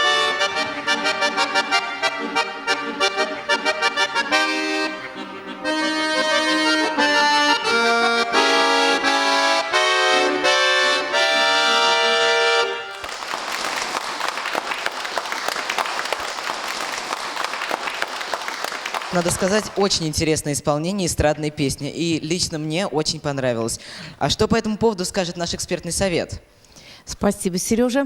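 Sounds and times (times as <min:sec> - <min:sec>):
button accordion playing: 0:00.0 - 0:20.1
audience applause: 0:12.8 - 0:20.2.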